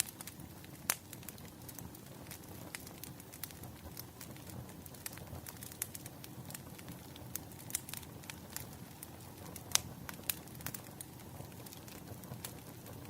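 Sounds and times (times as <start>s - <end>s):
low fire rumble: 0.0s - 13.0s
wood fire crackling and popping: 0.0s - 13.0s.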